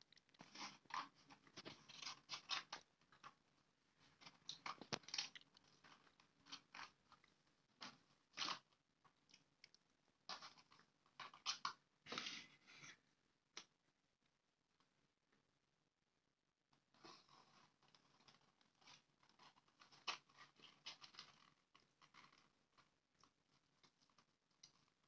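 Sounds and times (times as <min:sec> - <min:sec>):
crunchy chewing of food: 0:04.1 - 0:11.8.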